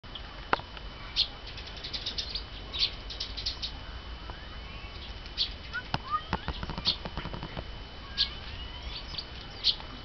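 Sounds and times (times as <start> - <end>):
birds twittering: 0.1 - 10.0.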